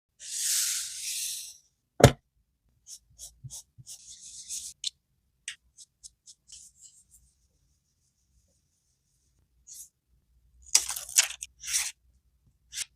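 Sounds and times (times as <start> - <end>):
paper crinkling and clicking: 10.7 - 11.5.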